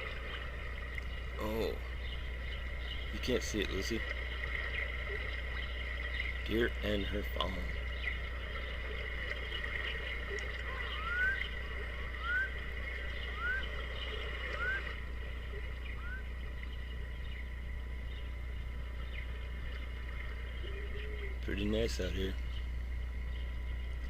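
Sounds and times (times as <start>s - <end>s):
low hum: 0.0s - 24.0s
bird whistling rising notes: 10.7s - 15.0s, 15.8s - 16.3s.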